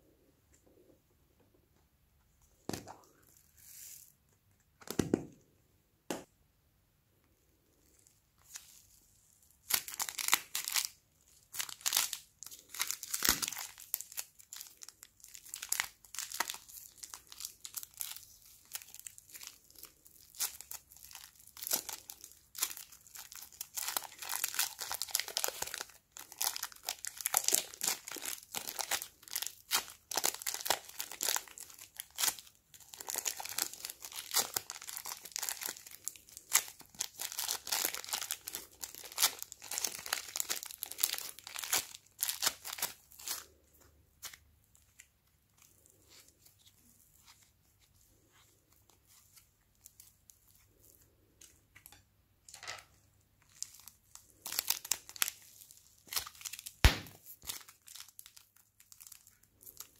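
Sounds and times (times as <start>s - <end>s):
plastic bag crinkling: 9.6s - 43.6s.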